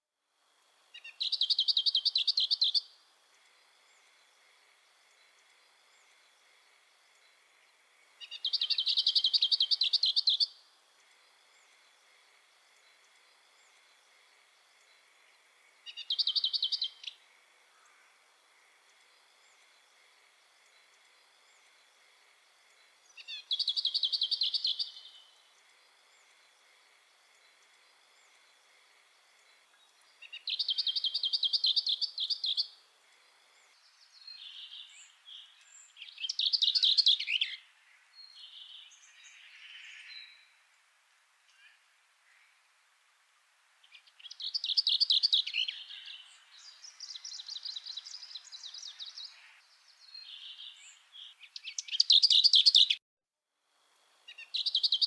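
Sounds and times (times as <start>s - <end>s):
faint high-pitched whine: 0.0s - 55.0s
songbird trilling: 1.0s - 2.9s, 8.2s - 10.6s, 15.9s - 17.2s, 23.2s - 25.2s, 30.2s - 32.7s, 34.4s - 37.6s, 44.2s - 49.6s, 50.2s - 53.0s, 54.3s - 55.0s.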